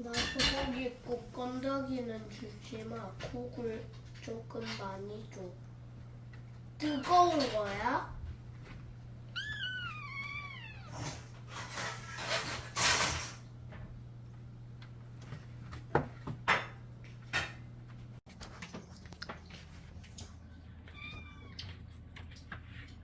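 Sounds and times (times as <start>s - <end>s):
cat meowing: 9.3s - 11.2s, 20.9s - 21.7s.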